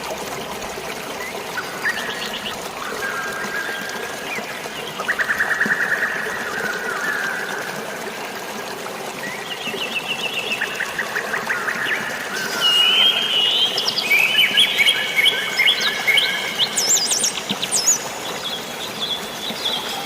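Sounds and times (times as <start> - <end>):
running water: 0.0 - 20.0
birds singing: 9.2 - 20.0.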